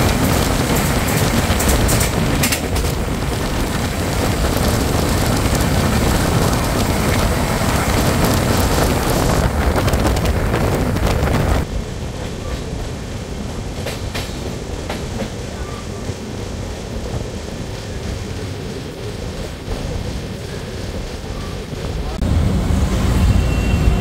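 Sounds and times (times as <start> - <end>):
passenger train rushing and rumbling: 0.0 - 24.0.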